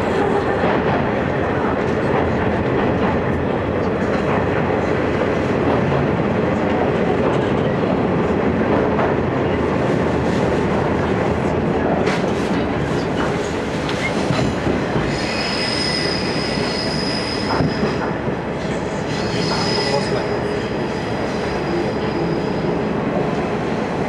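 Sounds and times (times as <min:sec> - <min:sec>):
railcar wheels and engine rumbling: 0:00.0 - 0:24.0
high wheel squeal: 0:15.1 - 0:18.0, 0:19.1 - 0:22.8.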